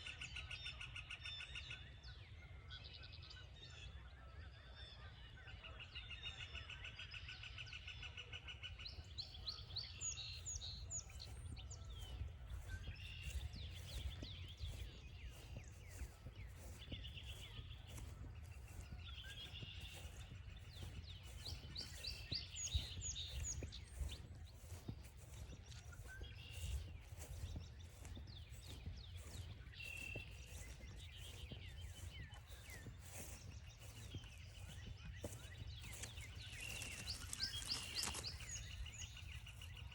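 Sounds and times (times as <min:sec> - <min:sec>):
songbirds singing: 0:00.0 - 0:39.9
footsteps on trail: 0:09.1 - 0:39.9.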